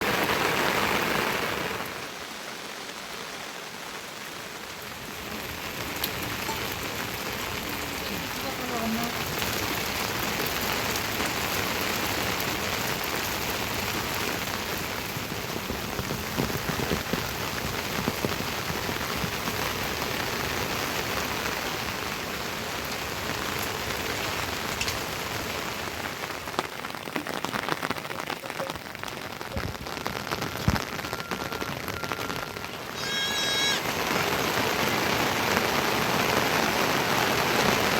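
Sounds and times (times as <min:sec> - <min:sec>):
steady rain falling: 0:00.0 - 0:37.9
sharp drips and taps: 0:05.9 - 0:11.6, 0:23.6 - 0:25.1.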